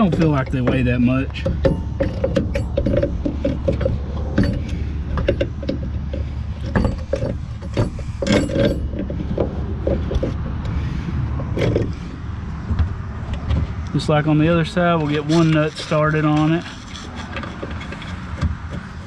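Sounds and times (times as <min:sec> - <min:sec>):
light metallic knocks and clicks: 0:00.0 - 0:12.0.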